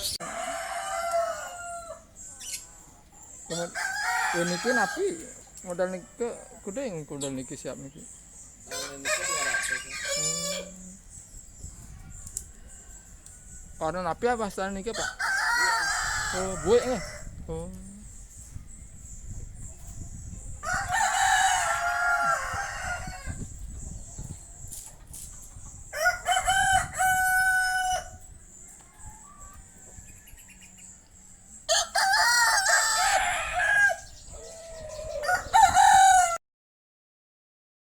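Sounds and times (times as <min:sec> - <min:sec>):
rooster crowing: 0:00.0 - 0:02.1, 0:03.5 - 0:05.4, 0:08.7 - 0:10.8, 0:14.9 - 0:17.3, 0:20.6 - 0:23.4, 0:25.9 - 0:30.6, 0:31.7 - 0:36.4.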